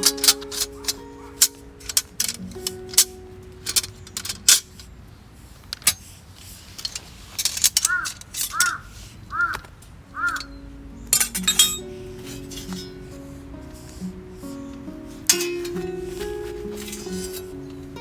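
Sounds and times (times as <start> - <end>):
metal gear clinking and rattling: 0.0 - 4.9, 5.6 - 13.2, 15.1 - 18.0
faint background music: 0.0 - 5.6, 9.9 - 18.0
bird calling: 7.8 - 11.2.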